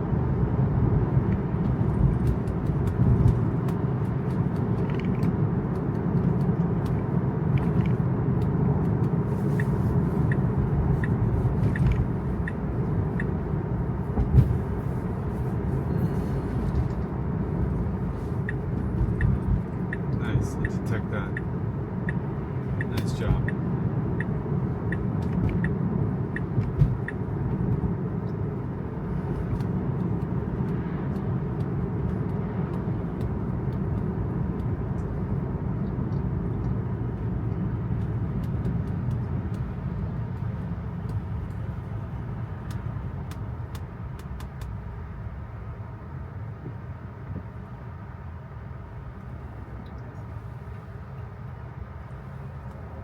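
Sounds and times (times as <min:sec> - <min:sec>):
tyre and road noise: 0:00.0 - 0:53.0
light ticks: 0:01.3 - 0:13.4, 0:18.4 - 0:22.2, 0:22.8 - 0:23.6, 0:24.2 - 0:28.4, 0:29.5 - 0:35.2, 0:37.4 - 0:41.7, 0:42.6 - 0:44.8.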